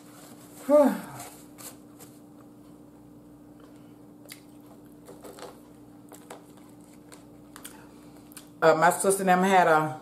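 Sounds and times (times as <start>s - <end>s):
faint steady hum: 0.0s - 10.0s
person chewing: 3.6s - 8.6s.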